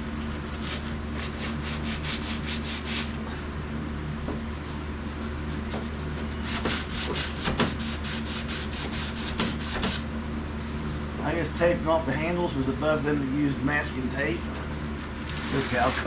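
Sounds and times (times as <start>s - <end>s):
steady low hum: 0.0s - 16.0s
sandpaper rubbing on paint: 0.6s - 3.1s, 6.5s - 10.0s, 15.3s - 16.0s.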